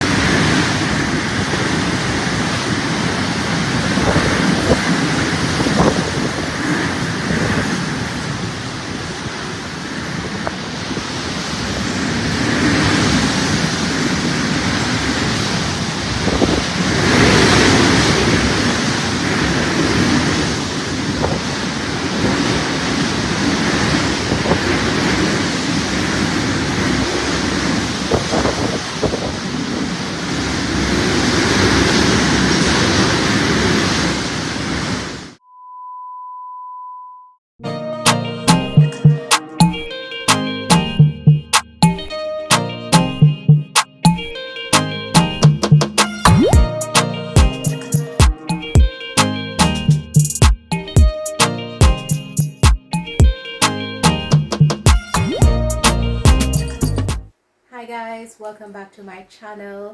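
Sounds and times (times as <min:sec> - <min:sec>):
wind buffeting microphone: 0:00.0 - 0:34.8
rain: 0:00.0 - 0:35.4
strong gusting wind: 0:00.0 - 0:35.4.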